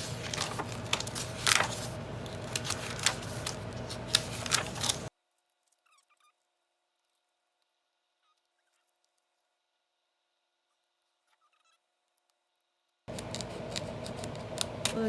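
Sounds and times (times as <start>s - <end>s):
old book pages rustling: 0.0s - 5.1s, 13.1s - 15.0s
brittle glue cracking: 13.1s - 15.0s.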